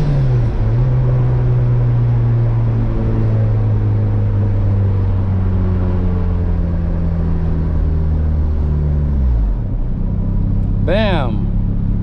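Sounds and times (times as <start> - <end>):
car engine running: 5.3 - 12.0.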